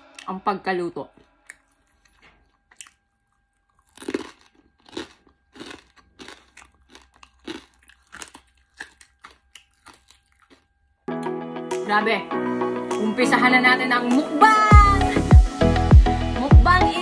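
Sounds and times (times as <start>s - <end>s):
crispy pork skin crunching: 1.3s - 10.8s.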